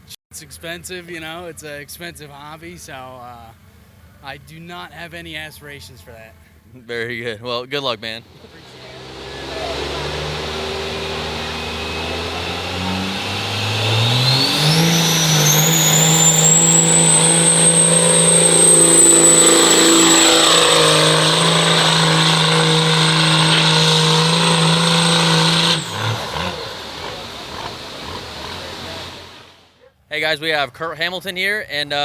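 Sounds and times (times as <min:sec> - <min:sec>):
diesel truck engine revving: 0:07.8 - 0:29.8
turbo whistle: 0:08.2 - 0:29.5.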